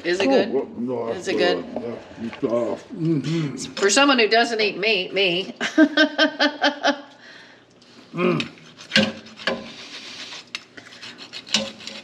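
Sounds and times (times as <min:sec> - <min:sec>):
utensil scraping in a pot: 0:08.4 - 0:12.0.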